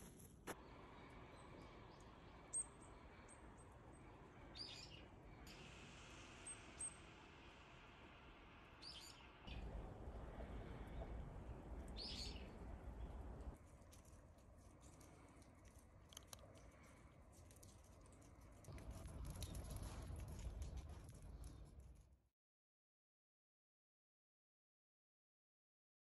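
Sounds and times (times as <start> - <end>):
small birds chirping: 0.5 - 20.2
low rumble: 5.4 - 13.6, 18.4 - 22.2.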